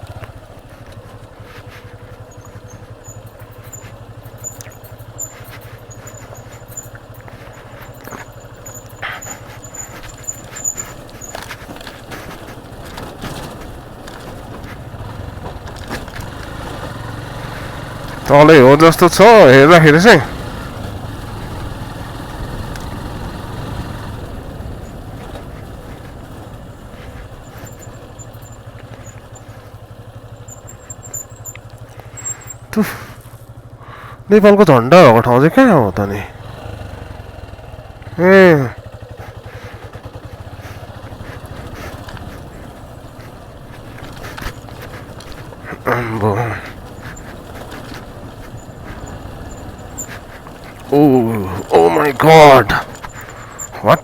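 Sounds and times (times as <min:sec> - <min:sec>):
motorcycle engine running: 0:00.0 - 0:54.0
knocks from riding: 0:00.2 - 0:18.3
thin high squeak: 0:02.2 - 0:12.2, 0:30.3 - 0:32.7, 0:46.9 - 0:50.6.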